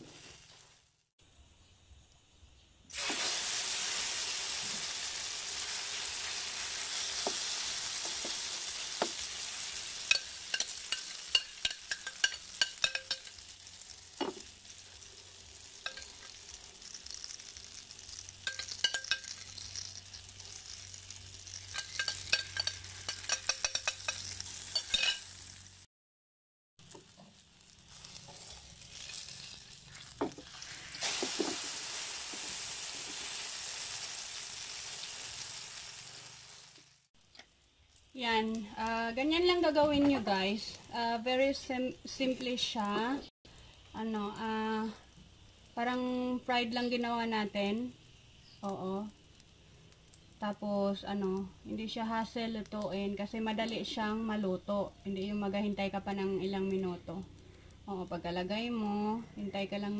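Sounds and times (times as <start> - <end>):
eggplant sizzling in hot oil: 0.0 - 1.1, 2.9 - 25.9, 26.8 - 59.9
metal spoon tapping pan: 10.1 - 13.4, 15.8 - 16.2, 18.4 - 19.6, 21.7 - 25.2.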